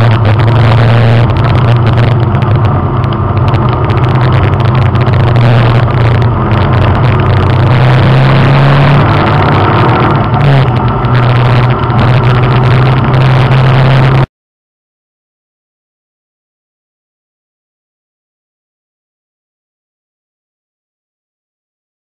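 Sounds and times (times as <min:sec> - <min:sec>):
race car engine running: 0:00.0 - 0:14.3.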